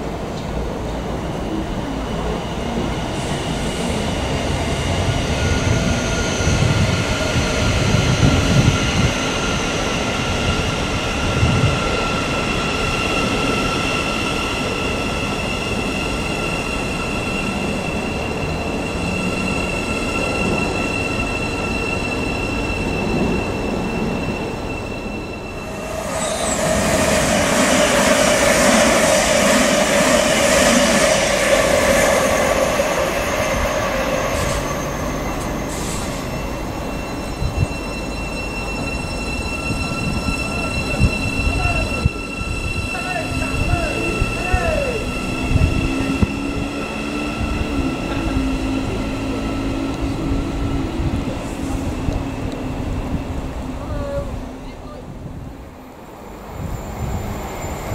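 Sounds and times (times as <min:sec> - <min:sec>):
electric train rushing past: 0:00.0 - 0:57.9
train hum: 0:00.0 - 0:57.9.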